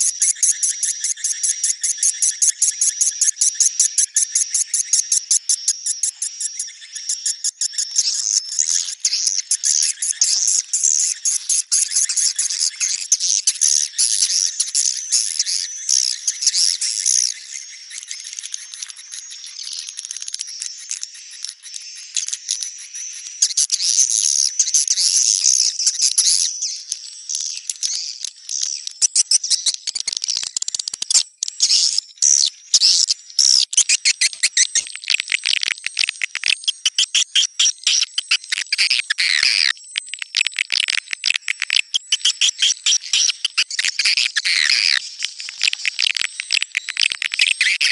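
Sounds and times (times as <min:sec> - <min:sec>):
swiftlets chirping and twittering: 0:00.0 - 0:26.4, 0:41.4 - 0:47.9.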